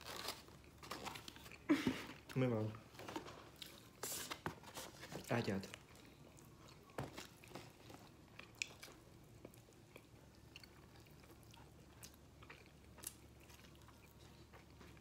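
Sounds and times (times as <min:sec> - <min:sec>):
chewing and biting food: 0:05.6 - 0:15.0.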